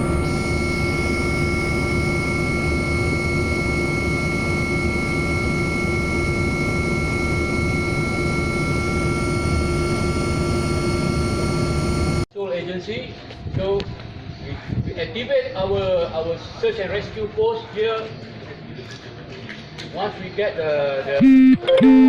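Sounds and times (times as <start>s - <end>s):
aircraft engine drone: 0.0s - 12.2s
high whining tones: 0.0s - 12.3s, 21.2s - 22.0s.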